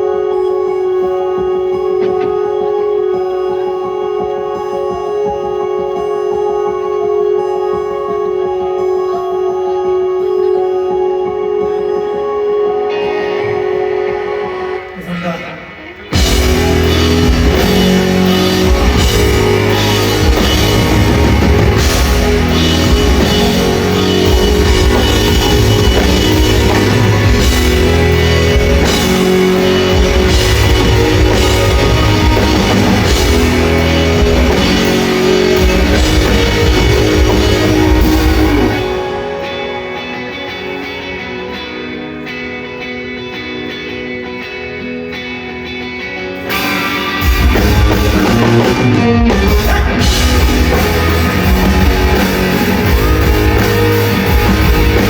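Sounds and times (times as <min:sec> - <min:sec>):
electric guitar: 0:00.0 - 0:55.0
rock band playing loud: 0:00.0 - 0:55.0
drum kit: 0:12.9 - 0:40.8, 0:46.4 - 0:55.0.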